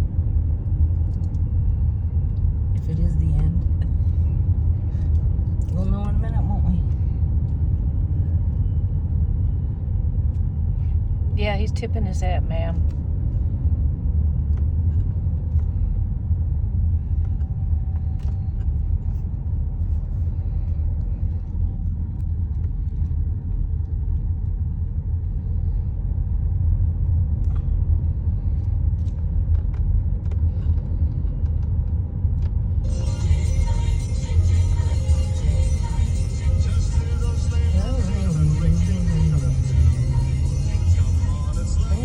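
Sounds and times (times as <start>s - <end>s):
car rolling low rumble: 0.0s - 42.0s.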